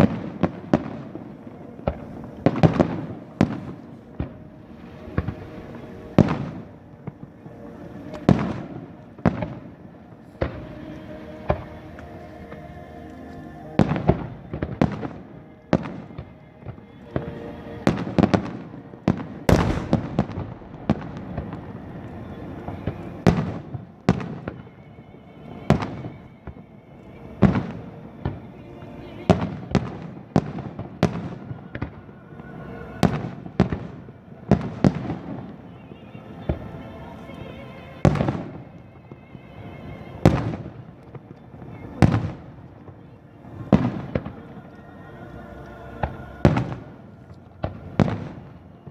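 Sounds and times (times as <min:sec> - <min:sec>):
fireworks booming: 0:00.0 - 0:10.8, 0:13.8 - 0:24.9, 0:27.4 - 0:35.7, 0:40.2 - 0:44.8, 0:46.0 - 0:48.9
background music: 0:00.0 - 0:48.9.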